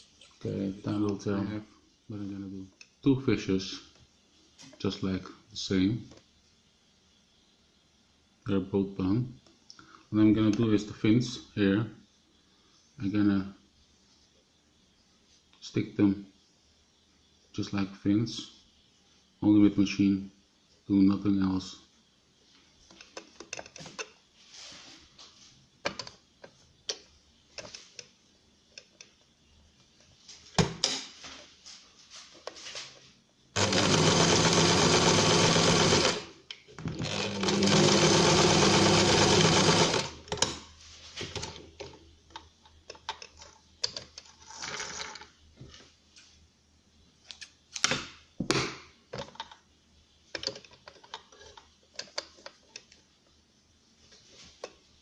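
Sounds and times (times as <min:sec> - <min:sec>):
electric sewing machine stitching: 0:33.6 - 0:36.3, 0:36.9 - 0:40.2.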